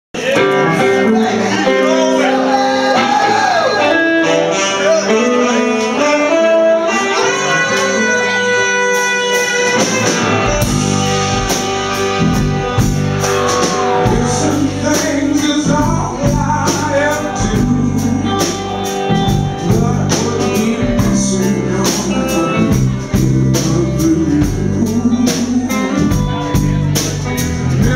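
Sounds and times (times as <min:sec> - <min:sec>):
bass and drums beat: 0:07.4 - 0:27.9.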